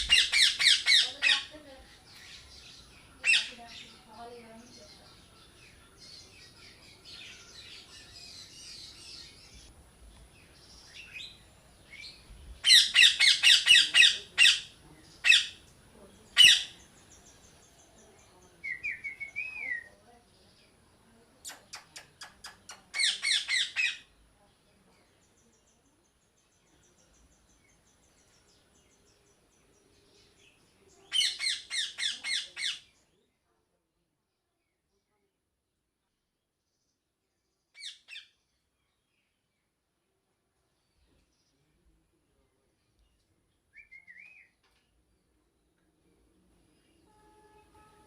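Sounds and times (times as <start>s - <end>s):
parrot squawking: 0.0s - 1.5s, 3.2s - 3.5s, 12.6s - 15.6s, 23.0s - 24.0s, 31.1s - 32.8s.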